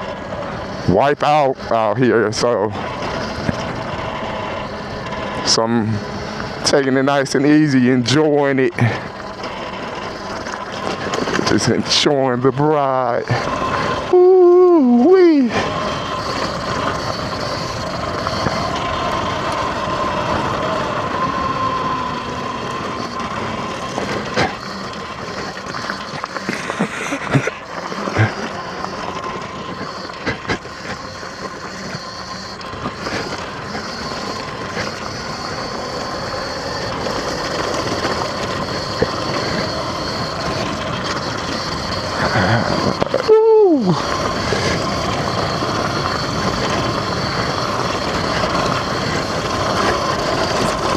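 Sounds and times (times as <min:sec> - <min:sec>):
dirt bike engine running: 0:00.0 - 0:50.9
gravel clicking under tyres: 0:00.0 - 0:50.9.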